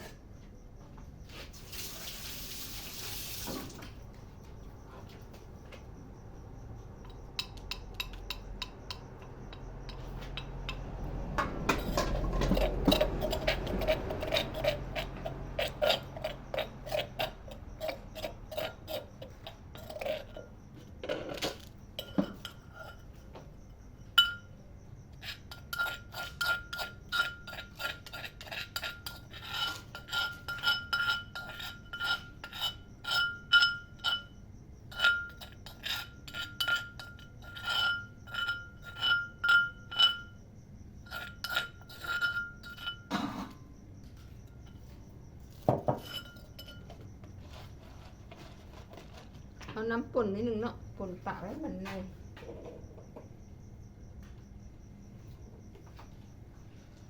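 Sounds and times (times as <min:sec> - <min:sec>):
pestle pounding in a mortar: 0:07.0 - 0:20.4.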